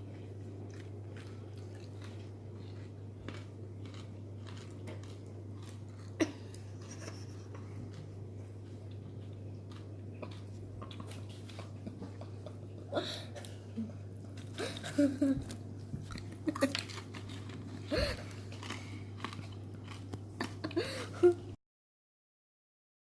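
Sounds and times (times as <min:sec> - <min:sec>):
person chewing crunchy popcorn: 0:00.0 - 0:12.7, 0:14.2 - 0:20.8
steady low hum: 0:00.0 - 0:21.6.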